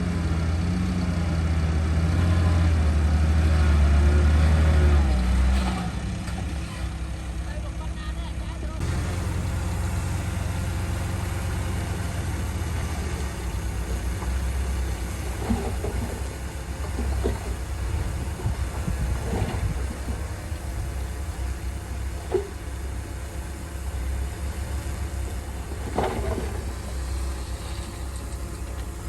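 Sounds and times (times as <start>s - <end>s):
diesel earthmoving machinery rumbling: 0.0s - 29.0s.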